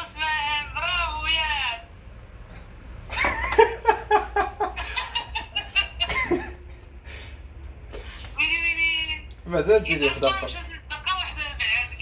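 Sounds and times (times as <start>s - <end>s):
person laughing: 3.1s - 7.3s.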